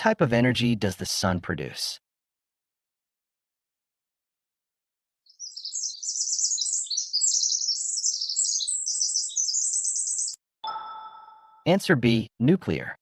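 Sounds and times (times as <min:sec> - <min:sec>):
songbirds twittering: 0:05.3 - 0:10.4.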